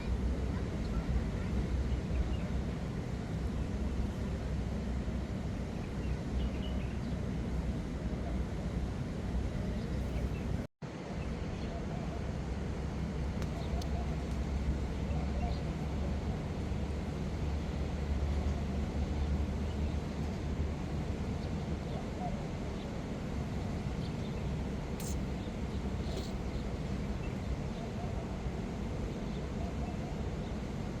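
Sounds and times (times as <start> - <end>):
low outdoor background rumble: 0.0 - 31.0.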